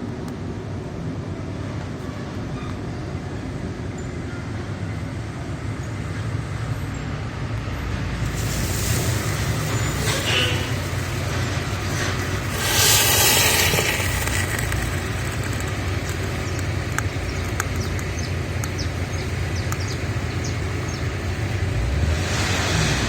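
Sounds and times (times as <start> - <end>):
low outdoor rumble: 7.8 - 23.0
loud rushing hiss: 8.2 - 17.5.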